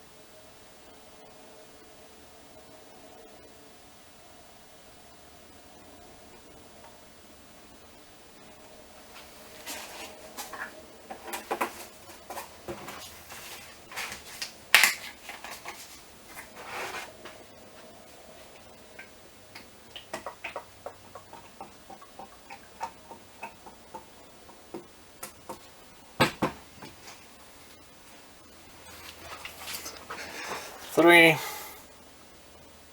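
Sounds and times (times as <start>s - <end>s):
plastic jug clicks and knocks: 26.2s - 27.0s.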